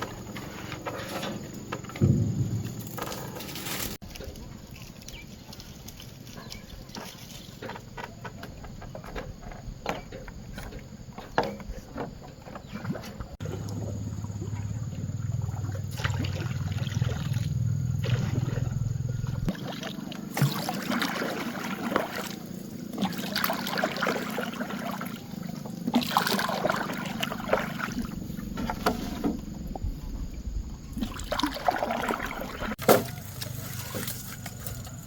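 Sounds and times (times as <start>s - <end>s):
water splashing and sloshing: 0.0s - 35.0s.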